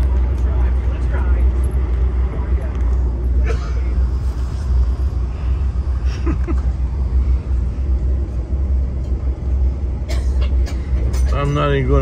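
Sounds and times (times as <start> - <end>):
train rolling at speed: 0.0 - 12.0.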